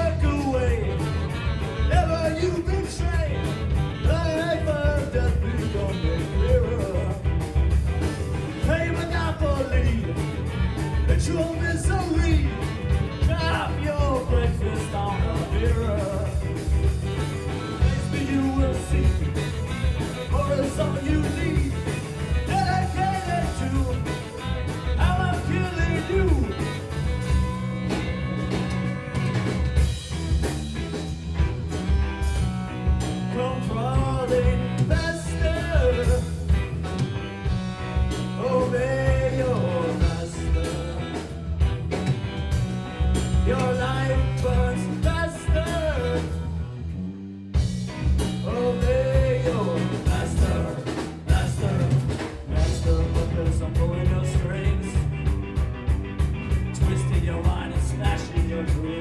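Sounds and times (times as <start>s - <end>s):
trombone band playing heavy metal: 0.0s - 59.0s.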